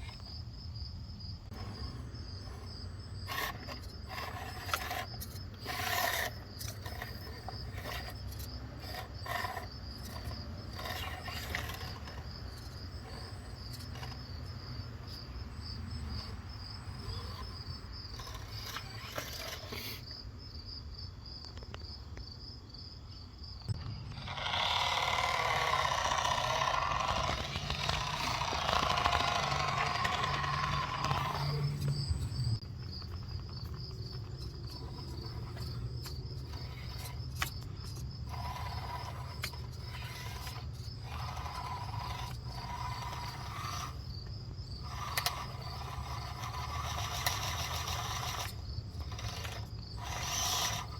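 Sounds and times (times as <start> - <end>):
toy truck motor and gearbox: 0.0 - 0.4, 1.4 - 20.2, 23.6 - 50.9
crickets chirping: 0.0 - 50.9
gearbox whine: 1.4 - 20.2, 23.6 - 50.9
scattered clicks: 23.7 - 38.0.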